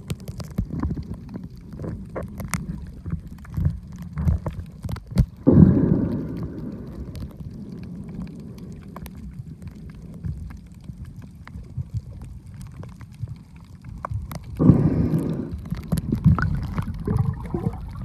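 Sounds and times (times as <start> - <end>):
muffled underwater rumble: 0.0 - 18.0
rush of water: 11.5 - 18.0.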